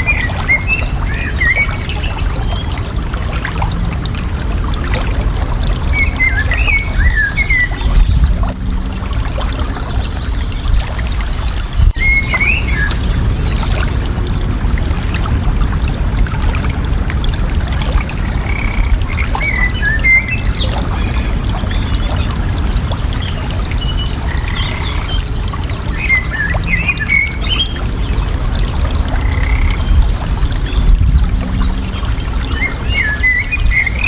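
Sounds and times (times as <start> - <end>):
water rushing: 0.0 - 34.0
birds chirping: 17.9 - 34.0.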